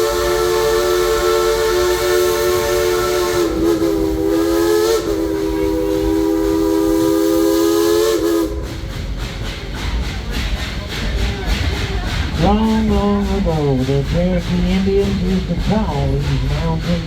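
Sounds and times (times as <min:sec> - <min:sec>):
steam locomotive chime whistle: 0:00.0 - 0:09.0
train running rumble: 0:00.0 - 0:17.0.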